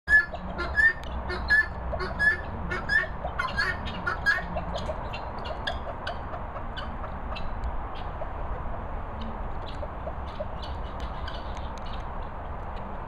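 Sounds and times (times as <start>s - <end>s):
birds calling with rising notes: 0.1s - 8.7s.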